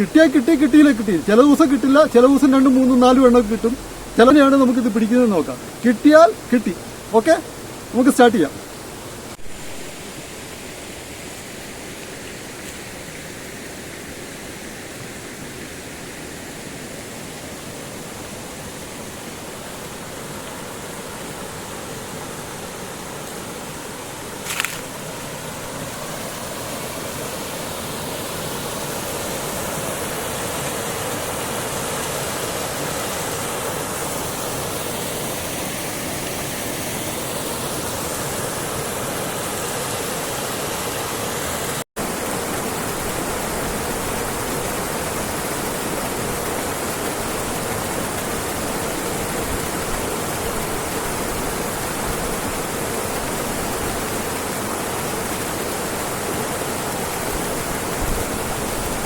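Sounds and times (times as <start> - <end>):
water pouring over waterfall: 24.4 - 59.0.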